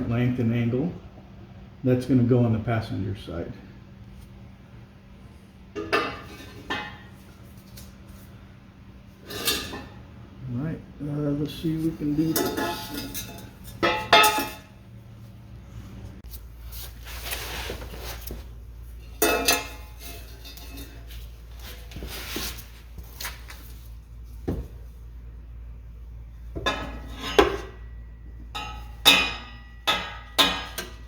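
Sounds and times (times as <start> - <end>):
metal exhaust pipe clanking: 9.2 - 10.1, 11.7 - 14.9, 18.9 - 21.4, 26.5 - 31.0.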